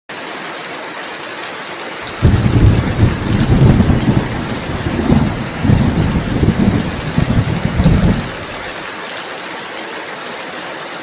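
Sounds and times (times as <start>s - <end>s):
steady rain hissing: 0.8s - 11.0s
low rolling thunder: 2.1s - 8.8s.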